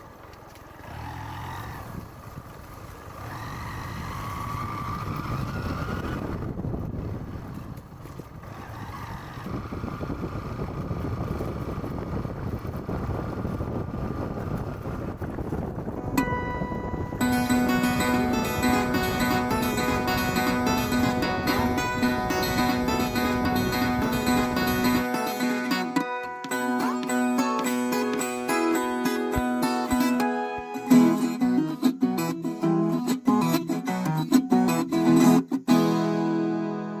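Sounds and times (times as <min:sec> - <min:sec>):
vehicle road rumble: 0:00.0 - 0:32.3
wind buffeting microphone: 0:01.2 - 0:25.2
acoustic guitar picking and strumming: 0:15.8 - 0:37.0.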